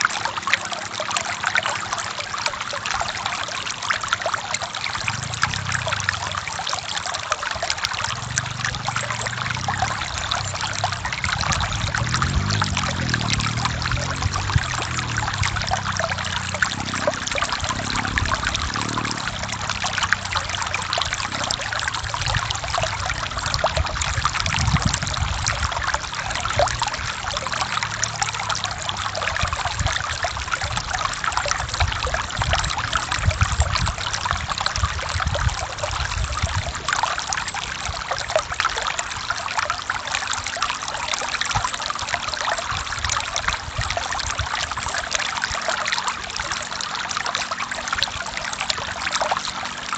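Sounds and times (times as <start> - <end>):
stream flowing over rocks: 0.0 - 49.9
low rumble: 8.0 - 30.1.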